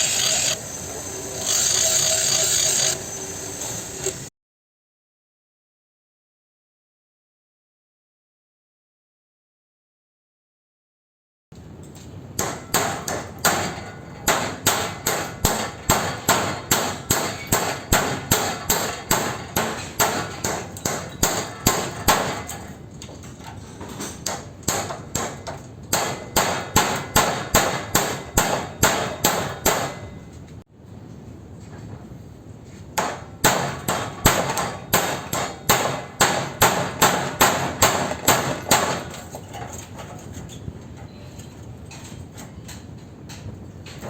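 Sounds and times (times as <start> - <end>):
hammer striking chisel on metal: 12.4 - 22.7, 24.0 - 30.3, 33.0 - 39.3
sharp metallic clangs: 12.4 - 22.8.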